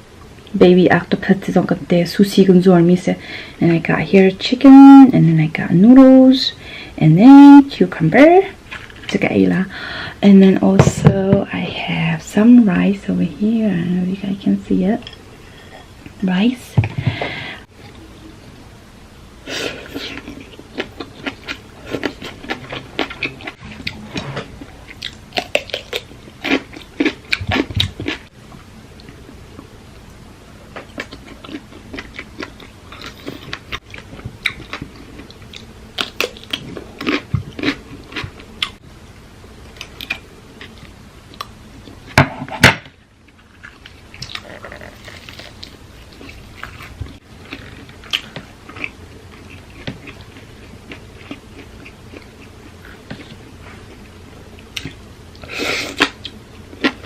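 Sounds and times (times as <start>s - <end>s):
person chewing and crunching: 19.9s - 28.3s, 30.7s - 38.8s, 43.3s - 54.1s.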